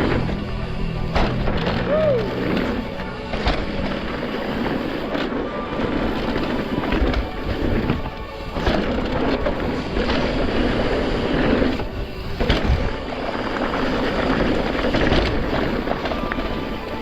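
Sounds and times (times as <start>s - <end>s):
bike tyres rolling on dirt: 0.0s - 17.0s.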